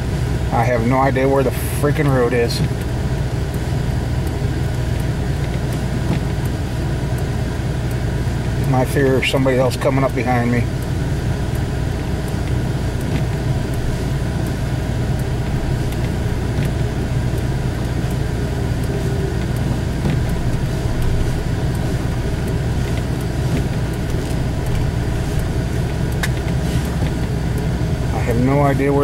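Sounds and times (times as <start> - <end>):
engine and road drone in cab: 0.0 - 29.0.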